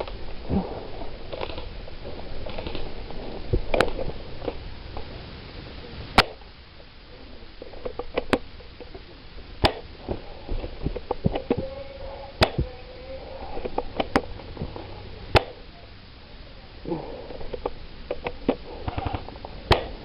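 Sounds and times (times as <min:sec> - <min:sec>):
soft ticks and rustling: 0:00.0 - 0:16.6
sharp clicks or snaps: 0:06.2 - 0:06.5, 0:17.5 - 0:20.0.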